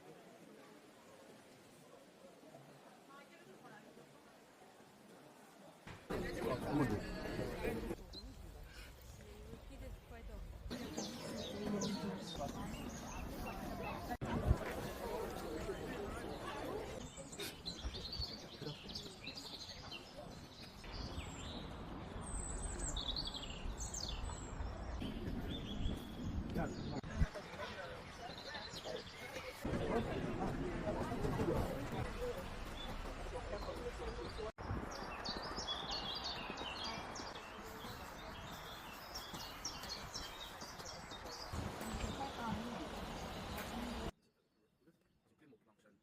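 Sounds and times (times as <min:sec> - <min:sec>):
songbirds chirping: 0:00.0 - 0:44.9
small birds chirping: 0:32.1 - 0:44.1.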